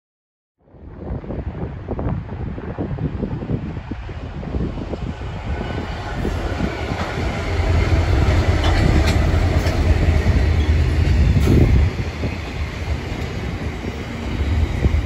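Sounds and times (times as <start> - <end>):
locomotives low rumble: 0.7 - 15.0
train wheel clicks: 8.2 - 10.0.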